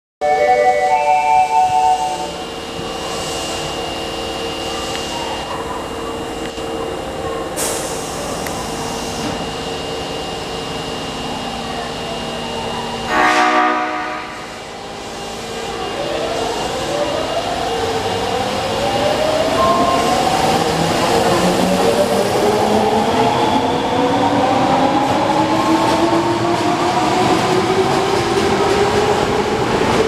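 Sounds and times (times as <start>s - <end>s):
thin high tone: 0.2s - 2.5s
steady train noise: 0.2s - 30.0s
train air horn blast: 13.1s - 14.5s.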